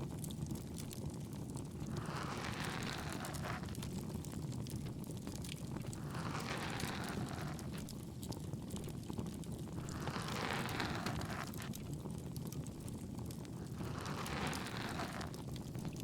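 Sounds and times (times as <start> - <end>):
bonfire crackling: 0.0 - 16.0
ear-pick scraping: 1.8 - 3.8, 5.9 - 7.9, 9.8 - 11.7, 13.6 - 15.4.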